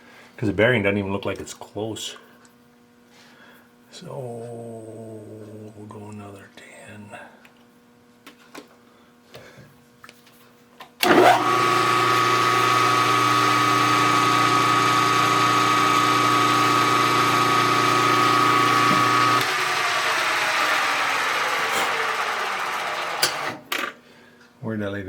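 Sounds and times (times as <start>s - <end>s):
milling machine spindle running: 11.0s - 23.6s.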